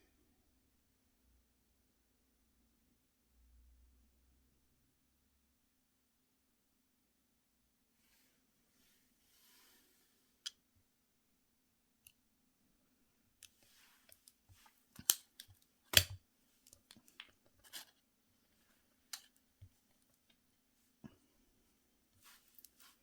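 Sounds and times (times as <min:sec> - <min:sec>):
small objects clicking: 0:15.0 - 0:17.9
scratchy scrapes: 0:16.7 - 0:18.0.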